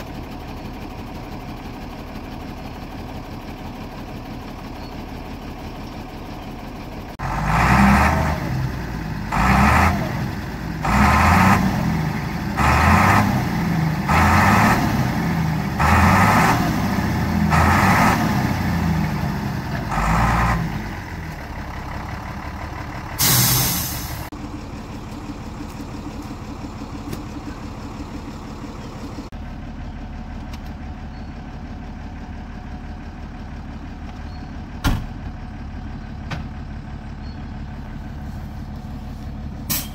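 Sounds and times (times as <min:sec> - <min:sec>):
engine idling: 0:00.0 - 0:39.9
vehicle engine revving: 0:07.2 - 0:21.2
short loud hiss: 0:23.2 - 0:24.3.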